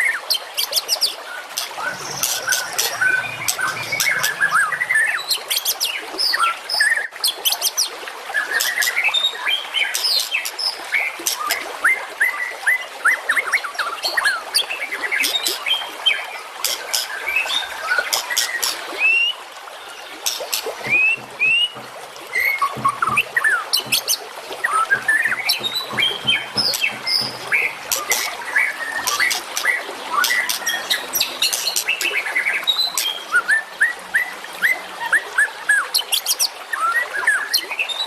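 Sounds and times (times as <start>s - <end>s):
recorded songbird song: 0.0s - 7.7s, 12.2s - 38.0s.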